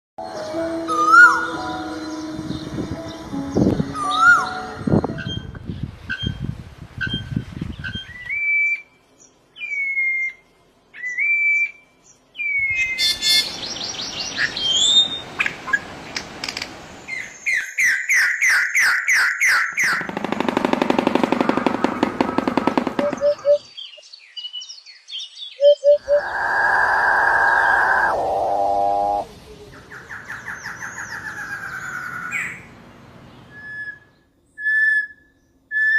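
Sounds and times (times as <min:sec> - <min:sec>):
bird calls and whistles: 0:07.0 - 0:08.9, 0:09.6 - 0:10.4, 0:11.0 - 0:11.8, 0:12.4 - 0:15.8, 0:23.0 - 0:29.2, 0:33.5 - 0:35.9.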